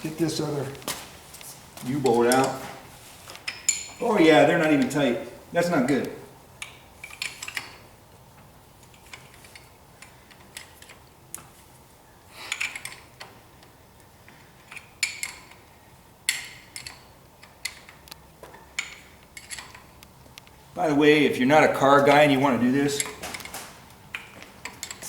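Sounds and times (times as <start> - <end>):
hand tools clinking on metal: 1.8 - 2.8, 3.4 - 5.1, 22.8 - 25.0.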